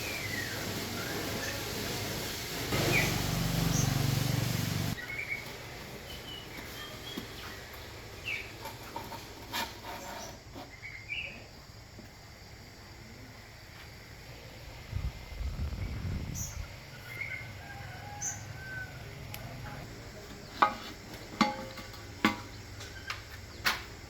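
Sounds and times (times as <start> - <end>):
small birds chirping: 5.0 - 8.8, 14.9 - 19.5.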